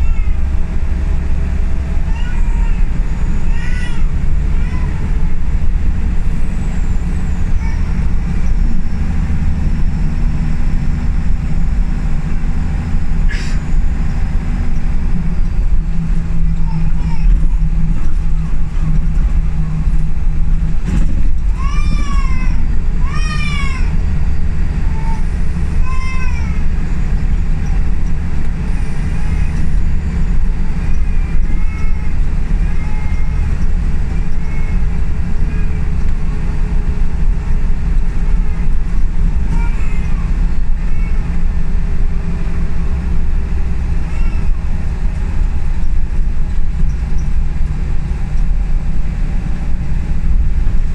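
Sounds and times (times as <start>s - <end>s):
bus engine and road rumble: 0.0s - 50.9s
short high squeals: 13.3s - 14.3s.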